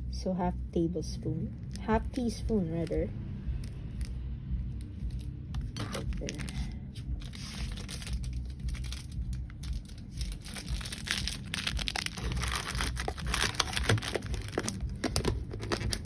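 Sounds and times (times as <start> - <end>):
packaging crinkling and rustling: 5.1 - 16.0.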